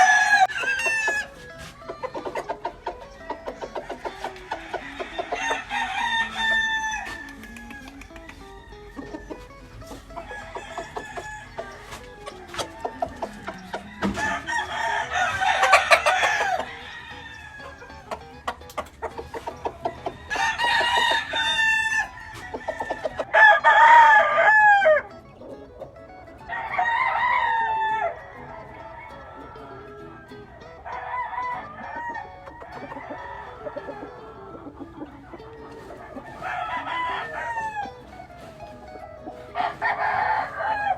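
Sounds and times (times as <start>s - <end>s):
chicken clucks and calls: 0.0s - 40.9s
roosters crowing: 0.0s - 40.9s.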